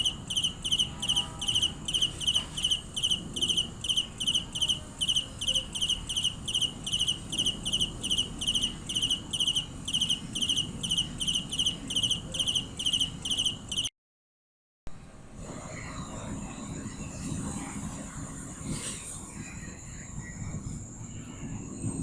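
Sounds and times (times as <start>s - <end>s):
cricket chirping: 0.0s - 13.9s.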